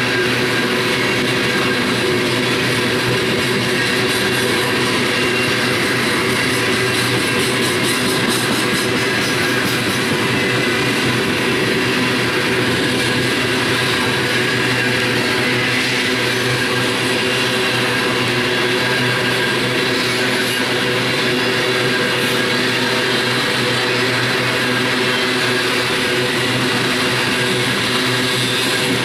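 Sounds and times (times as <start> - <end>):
freight train wheels on rails: 0.0 - 29.0.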